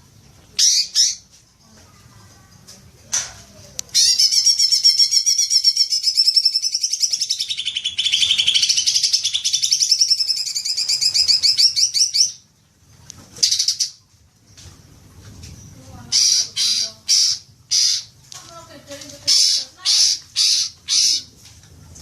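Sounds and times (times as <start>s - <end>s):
bird chattering trill: 4.0s - 12.4s, 16.1s - 18.2s.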